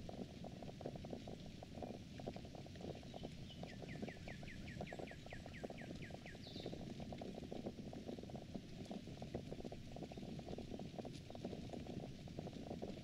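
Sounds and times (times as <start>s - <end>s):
dense low crackling: 0.0s - 13.0s.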